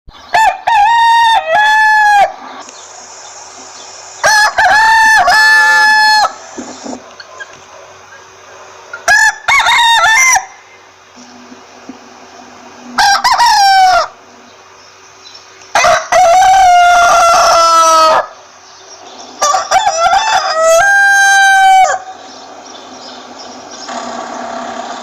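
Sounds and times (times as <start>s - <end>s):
rooster crowing: 0.3s - 2.4s, 4.2s - 6.7s, 8.9s - 10.9s, 12.8s - 14.3s, 15.7s - 18.4s, 19.4s - 22.3s.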